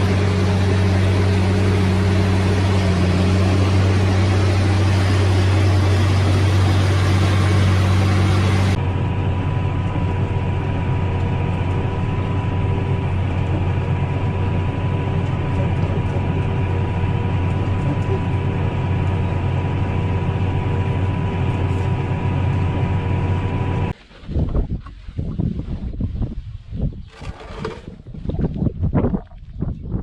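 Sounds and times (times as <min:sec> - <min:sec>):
farm machine engine droning: 0:00.0 - 0:24.0.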